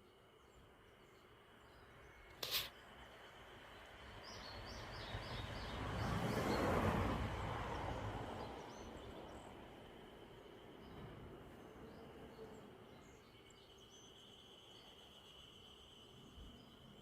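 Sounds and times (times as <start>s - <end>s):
high insect drone: 0.0s - 5.1s, 7.6s - 17.0s
vehicle passing by: 5.1s - 8.7s.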